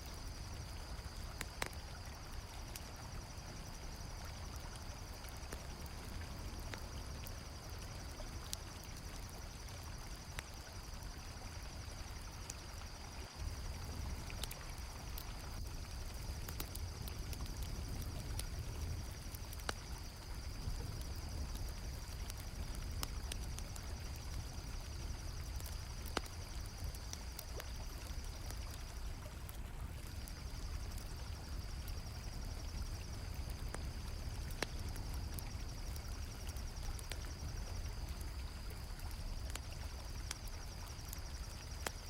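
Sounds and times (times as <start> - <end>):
campfire crackling: 0.0 - 42.0
crickets chirping: 0.0 - 42.0.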